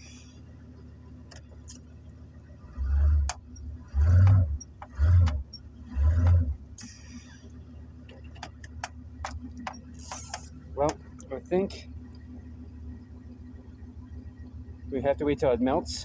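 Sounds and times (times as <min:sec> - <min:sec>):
van engine revving: 0:00.0 - 0:16.0.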